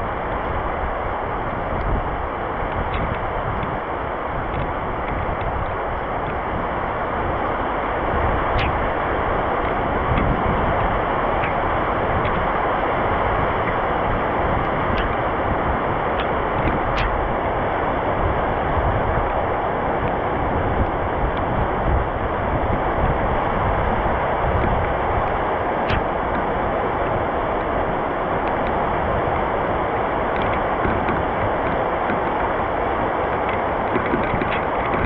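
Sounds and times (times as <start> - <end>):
raindrop ticks: 0.0 - 10.4, 11.2 - 22.9, 24.6 - 35.0
heavy rain with wind: 0.0 - 35.0.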